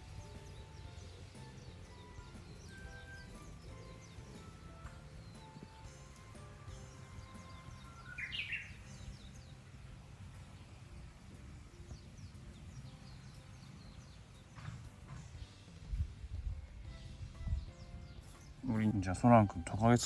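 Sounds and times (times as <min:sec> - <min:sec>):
birds chirping: 0:00.0 - 0:20.0
low rumble: 0:15.0 - 0:18.7.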